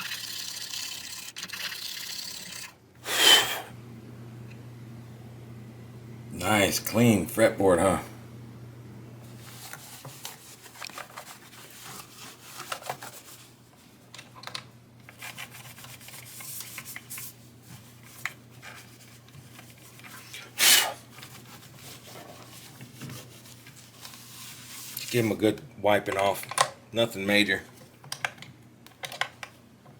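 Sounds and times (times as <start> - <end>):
low steady hum: 2.9 - 20.4.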